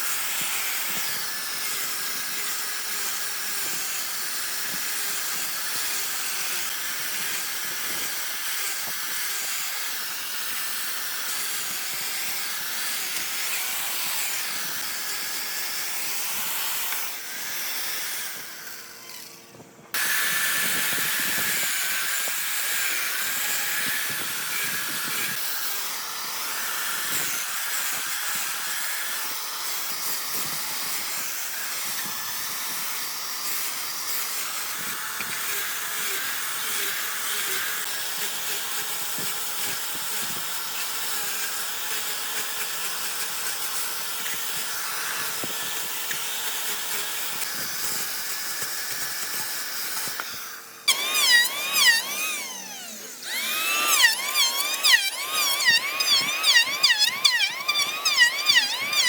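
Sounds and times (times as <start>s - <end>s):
power tool working wood: 0.0s - 59.0s.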